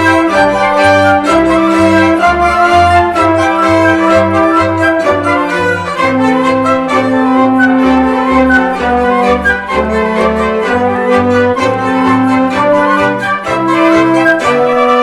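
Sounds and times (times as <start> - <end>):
orchestra playing: 0.0 - 15.0.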